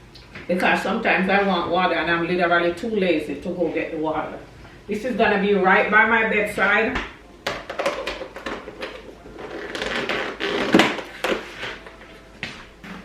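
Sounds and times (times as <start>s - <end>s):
kitchen items knocking and clicking: 7.0s - 9.2s.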